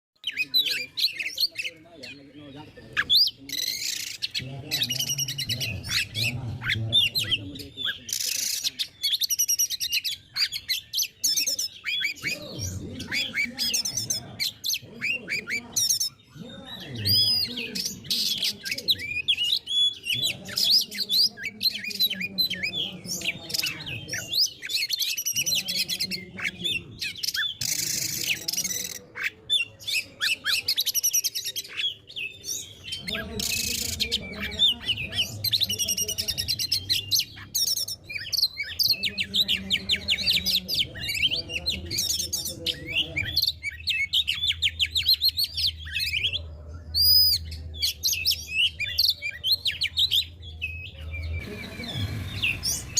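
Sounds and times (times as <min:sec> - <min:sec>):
bird song of whistles and chirps: 0:00.2 - 0:52.9
harsh hissing bird notes: 0:51.2 - 0:52.9.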